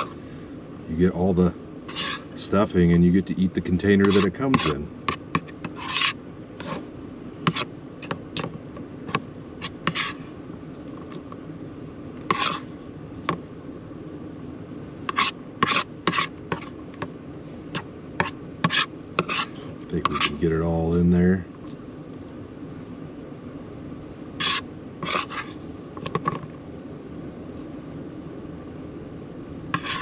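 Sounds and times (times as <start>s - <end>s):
steady low hum: 0.0s - 30.0s
spoon scraping bowl: 1.9s - 2.4s, 4.0s - 6.8s, 9.6s - 10.3s, 12.2s - 12.7s, 15.1s - 16.8s, 18.2s - 20.4s, 24.4s - 26.4s, 29.7s - 30.0s.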